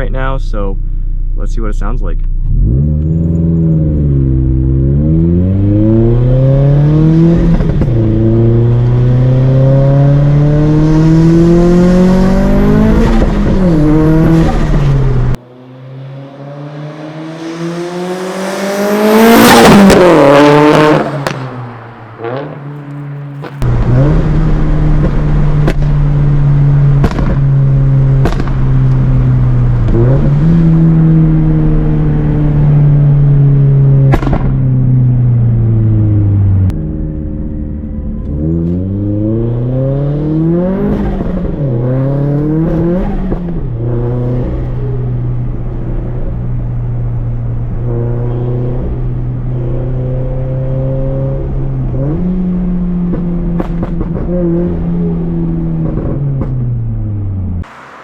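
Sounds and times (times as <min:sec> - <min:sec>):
car engine droning while driving: 0:00.0 - 0:58.0
exhaust cracks: 0:22.8 - 0:33.3, 0:33.9 - 0:38.9, 0:51.8 - 0:58.0.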